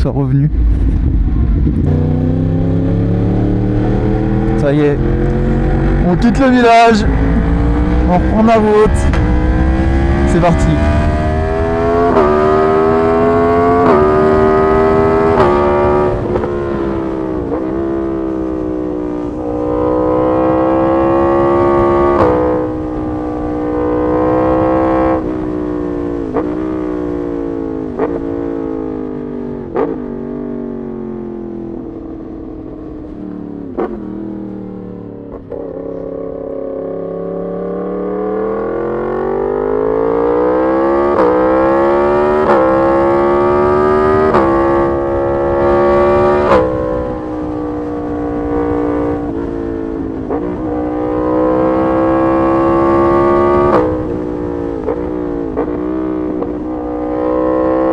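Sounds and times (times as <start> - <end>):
motorcycle engine revving: 0.4 - 57.9
exhaust cracks on gear changes: 4.4 - 20.3.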